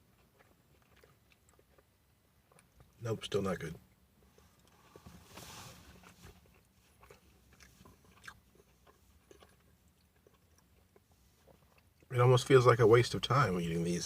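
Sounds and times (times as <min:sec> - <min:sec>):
chewing with light crunches: 0:00.0 - 0:14.0
soft hiss: 0:03.0 - 0:06.9.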